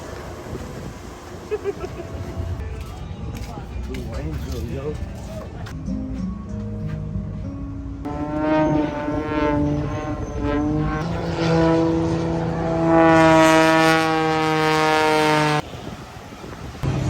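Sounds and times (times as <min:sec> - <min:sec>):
horn blasts: 0:08.1 - 0:16.0.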